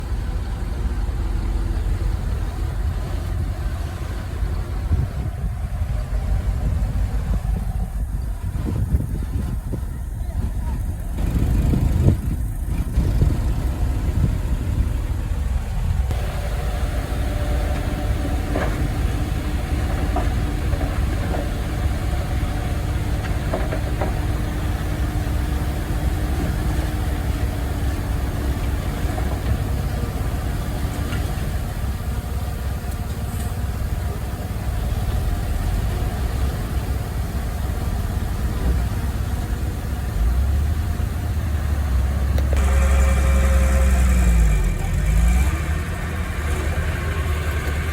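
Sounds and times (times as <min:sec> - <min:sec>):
faint steady whine: 0:00.0 - 0:45.0
heavy machinery engine rumbling: 0:00.0 - 0:47.9.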